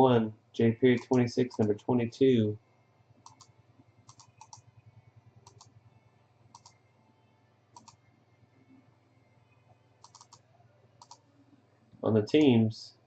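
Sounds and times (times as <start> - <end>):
computer mouse clicks: 0.9 - 1.8, 3.2 - 4.7, 5.4 - 5.8, 6.5 - 6.8, 7.7 - 8.0, 10.0 - 11.2.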